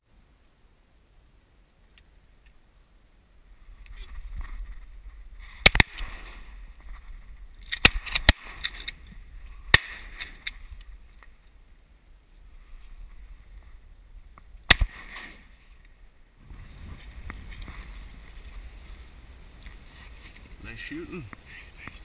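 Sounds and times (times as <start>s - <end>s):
low rumble of wind and water: 0.0s - 22.0s
shotgun shots: 5.6s - 6.4s, 14.7s - 15.4s.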